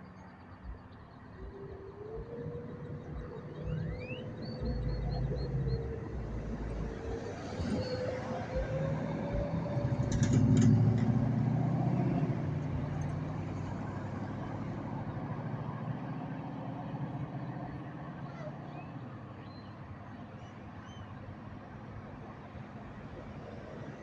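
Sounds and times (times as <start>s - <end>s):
motor vehicle passing: 0.6s - 20.8s.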